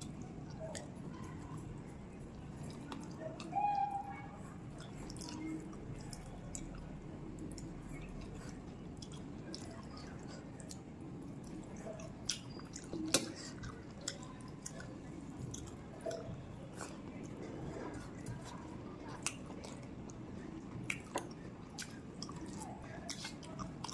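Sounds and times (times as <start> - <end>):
person chewing food: 0.0 - 3.5, 4.6 - 23.9
wet mouth clicks: 4.7 - 17.3.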